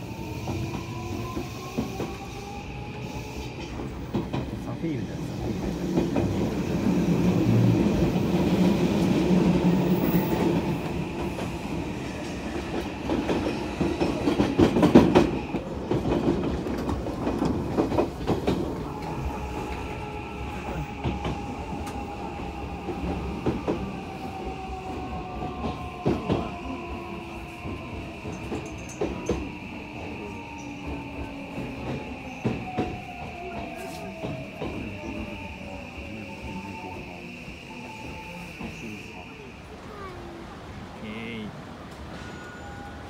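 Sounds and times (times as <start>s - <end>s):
train wheels clacking over joints: 12.2s - 19.8s, 27.6s - 35.4s.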